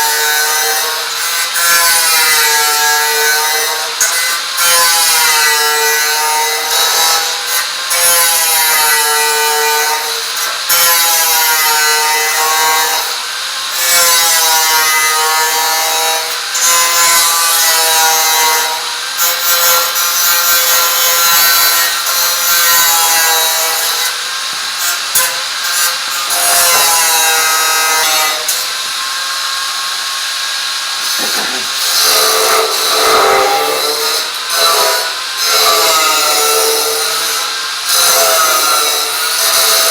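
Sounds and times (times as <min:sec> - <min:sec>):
power tool motor under load: 0:30.6 - 0:34.3.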